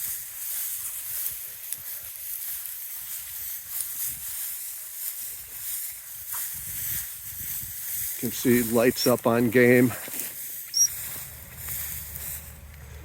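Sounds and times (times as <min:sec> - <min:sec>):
faint ticks and rustles: 0:00.0 - 0:13.0
wind buffeting microphone: 0:05.5 - 0:08.8.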